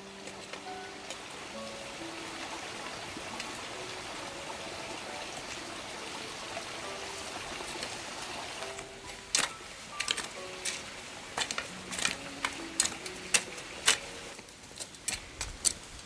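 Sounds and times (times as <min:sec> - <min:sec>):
running water rushing: 0:00.0 - 0:16.0.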